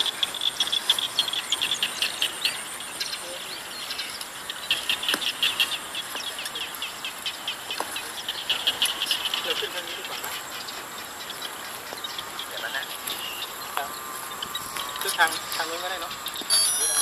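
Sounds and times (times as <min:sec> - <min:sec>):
small birds chirping: 0:00.0 - 0:17.0
thin high whine: 0:11.1 - 0:17.0.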